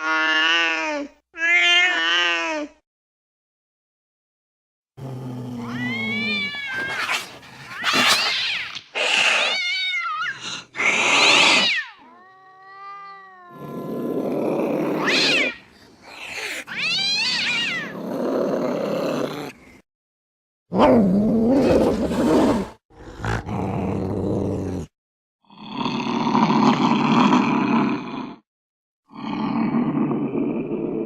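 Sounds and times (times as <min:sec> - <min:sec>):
cats yowling: 0:05.6 - 0:14.0, 0:14.9 - 0:18.0.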